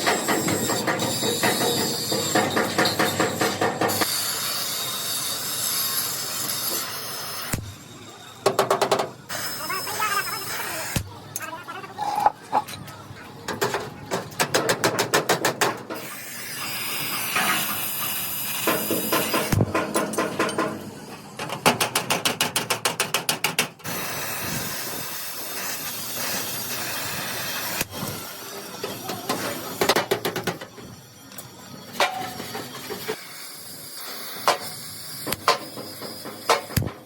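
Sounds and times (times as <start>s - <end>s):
steady tool hiss: 23.9s - 29.9s, 33.0s - 36.8s.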